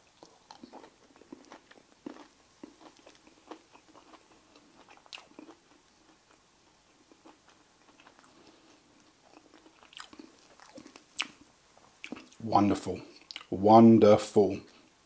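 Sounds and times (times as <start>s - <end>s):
person chewing crunchy food: 0.0s - 12.4s, 13.1s - 13.5s.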